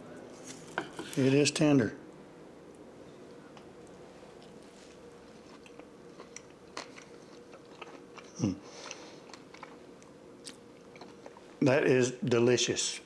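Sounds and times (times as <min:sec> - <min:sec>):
person chewing: 0:04.3 - 0:11.6.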